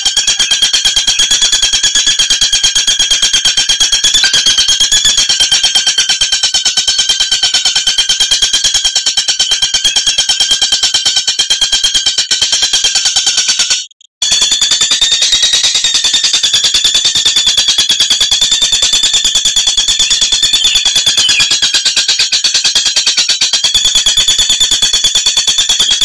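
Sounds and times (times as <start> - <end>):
bird rattling trill: 0.0 - 26.0.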